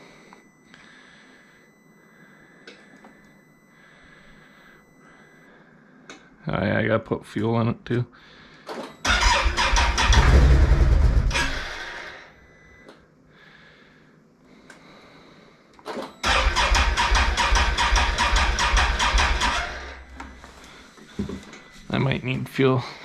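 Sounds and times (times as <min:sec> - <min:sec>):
electric starter cranking engine: 0:09.0 - 0:12.3, 0:16.2 - 0:20.4.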